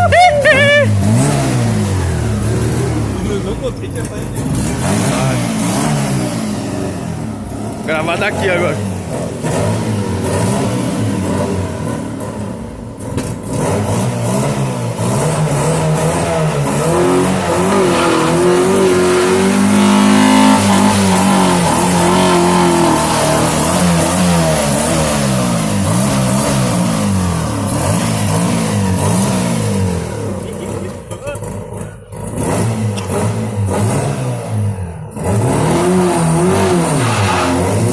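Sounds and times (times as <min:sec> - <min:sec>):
car engine revving: 0:00.0 - 0:37.9.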